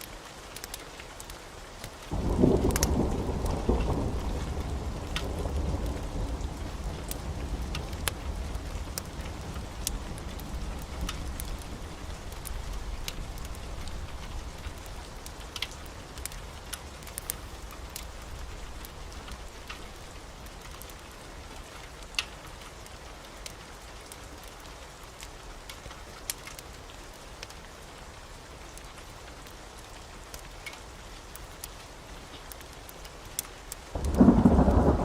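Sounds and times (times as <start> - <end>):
heavy rain: 0.0 - 35.0
low thunder rumble: 2.1 - 20.1, 34.0 - 35.0.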